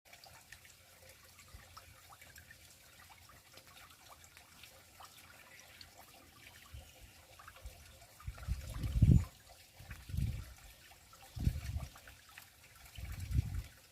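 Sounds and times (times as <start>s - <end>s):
stream trickling into pond: 0.0s - 13.9s
small splashes and drips: 0.1s - 13.9s.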